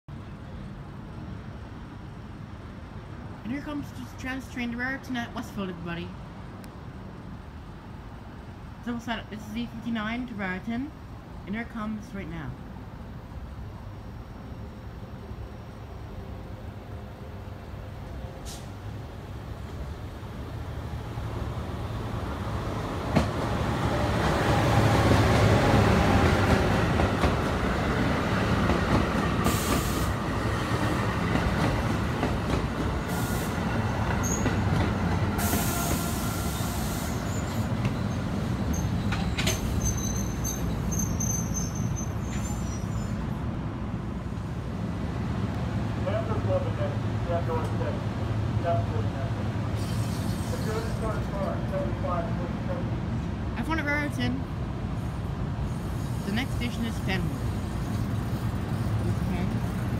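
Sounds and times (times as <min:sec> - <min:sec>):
locomotive rumbling past: 0:08.8 - 0:59.9
thin high squeals: 0:36.6 - 0:43.4
air hissing: 0:49.7 - 0:50.9.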